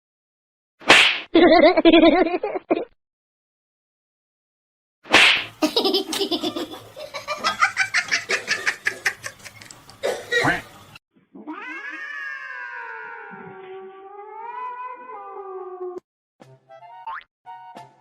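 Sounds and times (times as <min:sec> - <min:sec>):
person laughing: 0:01.4 - 0:02.9, 0:05.6 - 0:09.7.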